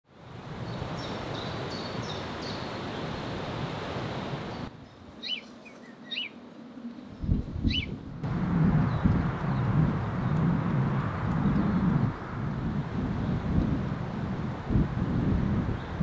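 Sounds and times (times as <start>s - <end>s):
open-air rushing noise: 0.1s - 16.0s
faint bird chirps: 4.8s - 6.4s
bird sweeping calls: 5.2s - 6.4s, 7.6s - 8.0s
low rumbles: 7.2s - 16.0s.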